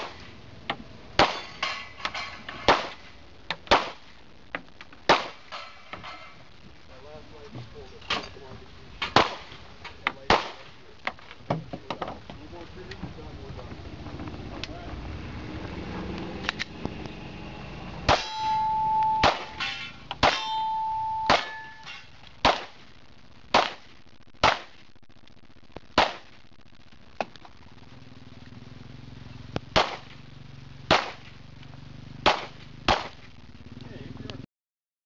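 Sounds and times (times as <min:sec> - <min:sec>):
pistol shots: 0:01.2 - 0:01.6, 0:02.6 - 0:03.1, 0:03.7 - 0:04.0, 0:05.1 - 0:05.5, 0:09.1 - 0:09.6, 0:10.3 - 0:10.7, 0:19.2 - 0:20.4, 0:21.2 - 0:22.8, 0:23.5 - 0:24.8, 0:26.0 - 0:26.3, 0:29.7 - 0:30.1, 0:30.9 - 0:31.3, 0:32.2 - 0:33.2
steel target ringing: 0:18.1 - 0:22.2.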